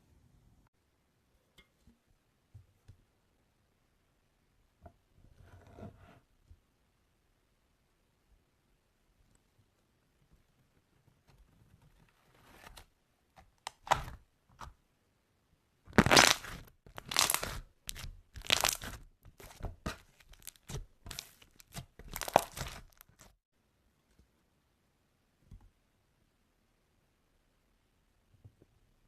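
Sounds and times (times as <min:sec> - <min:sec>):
slime crackling and popping: 0:13.7 - 0:14.2, 0:15.9 - 0:23.4.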